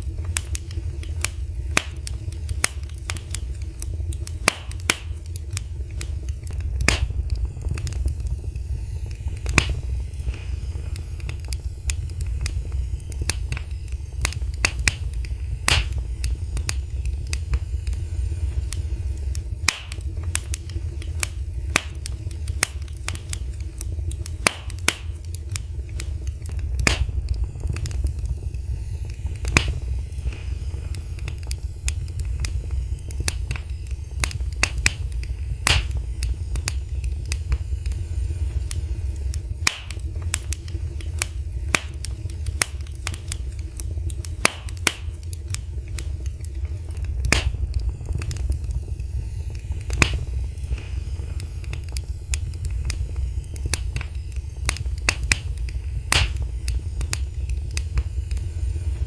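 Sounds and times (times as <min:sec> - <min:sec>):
low rumble: 0:00.0 - 0:59.0
wood fire crackling and popping: 0:00.0 - 0:59.0.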